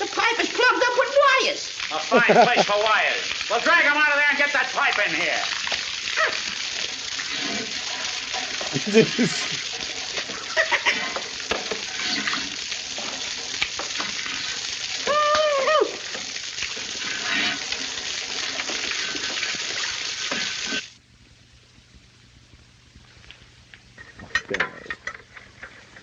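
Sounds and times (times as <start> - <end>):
water spraying from leaking pipe: 0.0 - 21.0
knocks and clatters: 11.1 - 12.0, 24.0 - 26.0.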